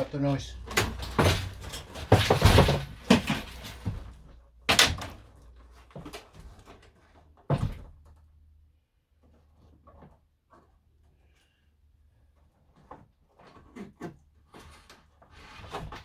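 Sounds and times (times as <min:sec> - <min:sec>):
loud cracks scrapes and bangs: 0:00.6 - 0:05.0.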